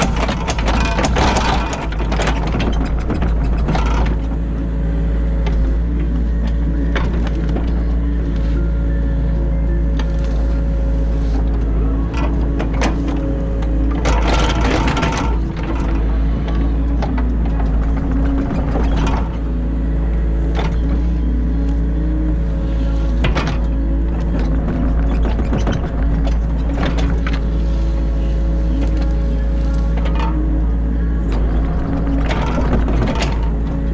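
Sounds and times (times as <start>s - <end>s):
excavator knocks and scrapes: 0.0s - 4.5s, 11.3s - 33.9s
excavator diesel engine running: 0.0s - 33.9s.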